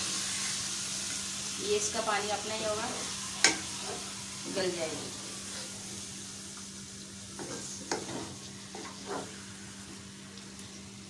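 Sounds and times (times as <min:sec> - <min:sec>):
chicken sizzling in a pot: 0:00.0 - 0:11.0
spoon scraping a pot: 0:07.4 - 0:09.4.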